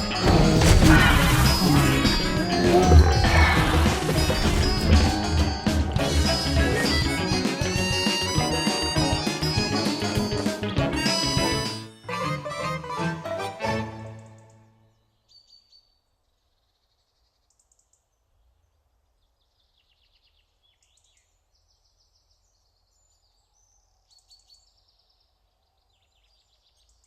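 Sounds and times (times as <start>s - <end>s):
small birds chirping and trilling: 15.0s - 27.0s.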